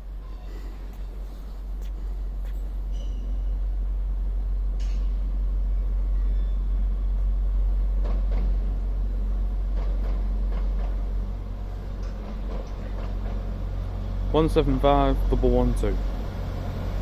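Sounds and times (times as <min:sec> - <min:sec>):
diesel engines rumbling: 0:00.0 - 0:17.0.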